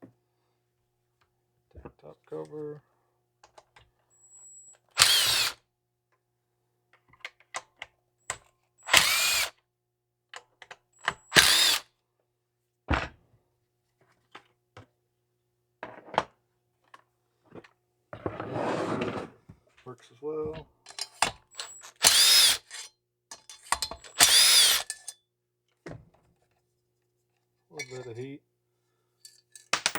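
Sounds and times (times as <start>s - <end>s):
cordless drill motor whine: 4.2s - 5.6s, 8.8s - 9.5s, 11.3s - 11.8s, 21.6s - 22.7s, 24.1s - 24.9s.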